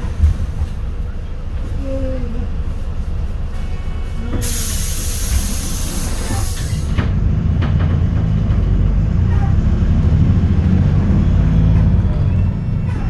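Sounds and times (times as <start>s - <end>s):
bus diesel engine rumbling: 0.0s - 13.0s
loud hiss: 4.4s - 7.0s.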